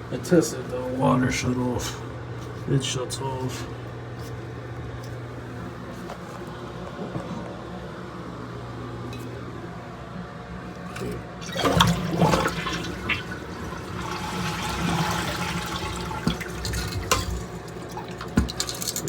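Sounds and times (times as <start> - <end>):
low steady hum: 0.0 - 19.0
toilet flushing: 10.8 - 18.8.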